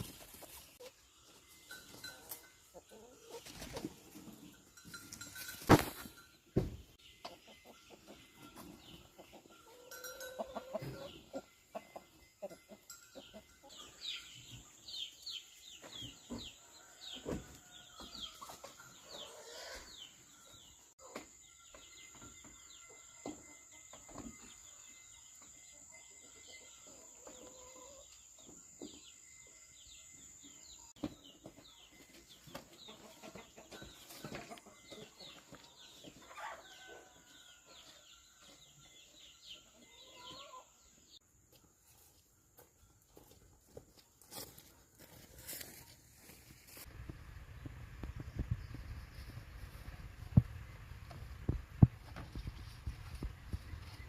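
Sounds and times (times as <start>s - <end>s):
chickens clucking: 0.0s - 29.0s, 30.9s - 44.5s.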